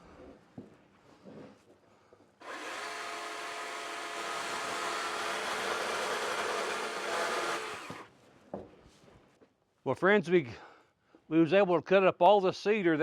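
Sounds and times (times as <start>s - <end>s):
power tool motor whirring: 2.4s - 8.1s.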